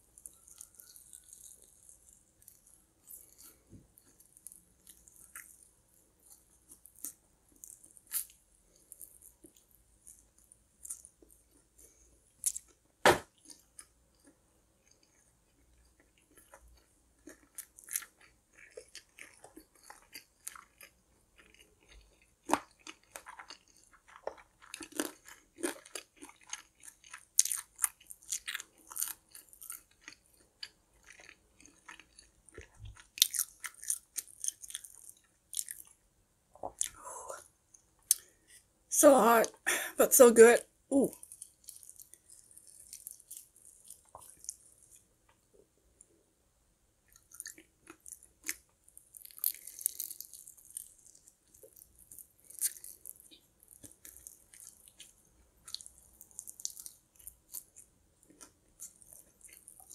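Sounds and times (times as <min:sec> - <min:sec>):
crunching fried food: 0:00.0 - 0:36.0, 0:41.1 - 0:45.4, 0:47.0 - 0:59.9.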